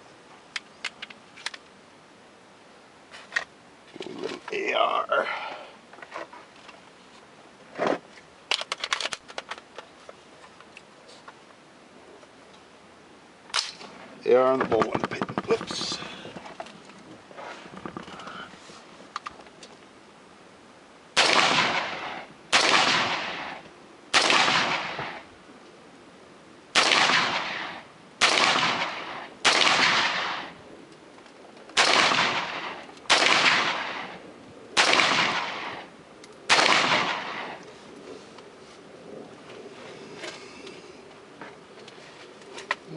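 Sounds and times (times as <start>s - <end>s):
ringing echo of gunshots: 21.2s - 25.2s, 26.8s - 30.6s, 31.8s - 34.2s, 34.8s - 35.9s, 36.5s - 37.6s
rifle shots: 21.2s - 25.3s, 26.7s - 30.6s, 31.8s - 34.2s, 34.8s - 35.9s, 36.5s - 37.6s.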